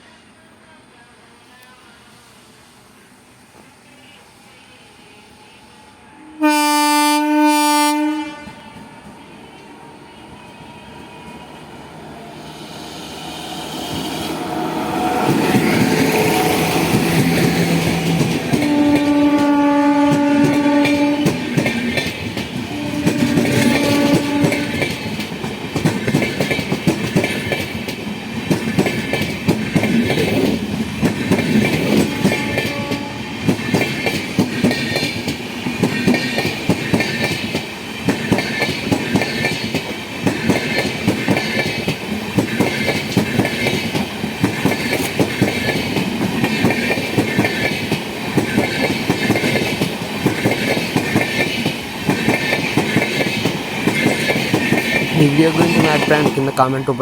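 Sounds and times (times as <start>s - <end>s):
locomotive horn blasts: 6.2s - 8.8s, 18.6s - 21.4s, 22.7s - 24.9s, 32.0s - 33.4s
train wheels clacking over rail joints: 15.2s - 56.4s.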